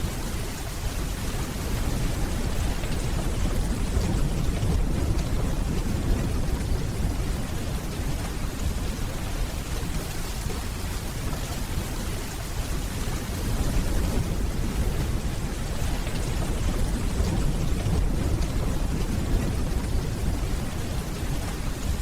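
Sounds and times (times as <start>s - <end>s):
steady rainfall: 0.0s - 22.0s
distant thunder rumbling: 1.5s - 9.7s, 13.4s - 22.0s.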